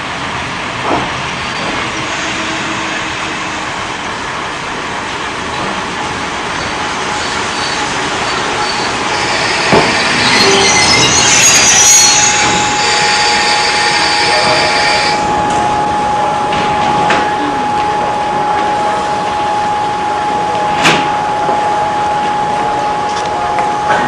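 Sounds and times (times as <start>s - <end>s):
train rushing noise: 0.0s - 24.0s
high squealing tones: 6.6s - 16.4s.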